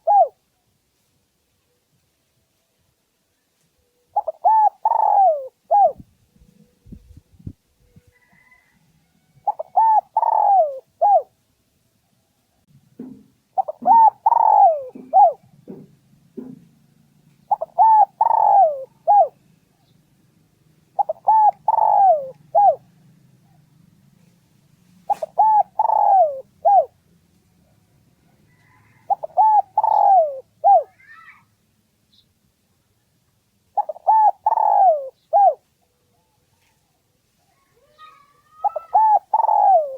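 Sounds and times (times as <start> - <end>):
dove cooing: 0.0 - 0.4, 4.1 - 8.6, 9.4 - 11.3, 13.0 - 16.6, 17.5 - 19.4, 21.0 - 23.6, 25.1 - 27.0, 28.4 - 31.0, 33.8 - 35.6, 38.0 - 39.9.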